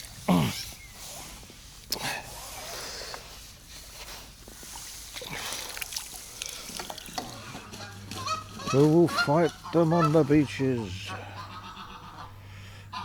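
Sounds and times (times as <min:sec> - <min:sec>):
water splashing and sloshing: 0:03.7 - 0:12.2.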